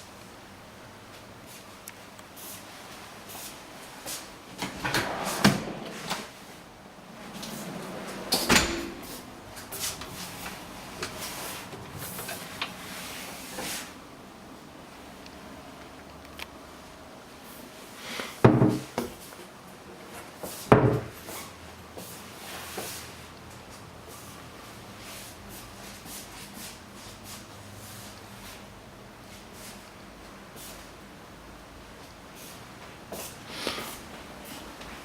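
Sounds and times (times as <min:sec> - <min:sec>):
cupboard doors opening and closing: 0:04.6 - 0:06.4, 0:07.2 - 0:12.6, 0:18.4 - 0:19.0, 0:20.7 - 0:21.2.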